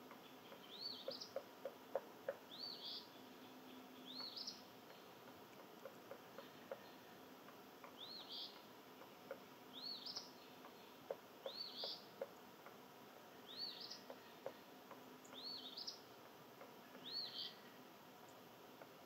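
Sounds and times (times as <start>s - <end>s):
bird calling: 0.1s - 7.1s, 7.8s - 12.4s, 13.4s - 19.0s
faint clicks: 4.1s - 6.8s, 7.4s - 9.4s.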